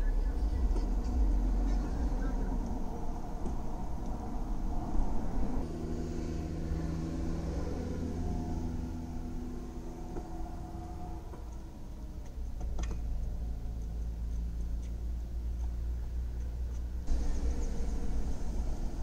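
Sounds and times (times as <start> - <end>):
hum: 0.0 - 19.0
car engine idling: 17.1 - 19.0.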